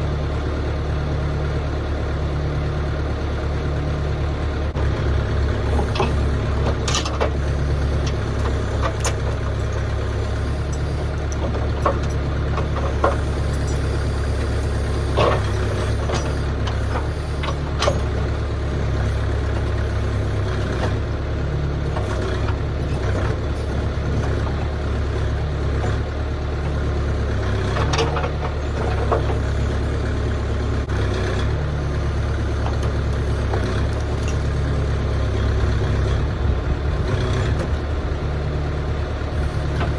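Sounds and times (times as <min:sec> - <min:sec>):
machine engine droning: 0:02.9 - 0:39.9
knocks and clunks: 0:05.7 - 0:18.4, 0:27.7 - 0:29.5, 0:39.6 - 0:39.9.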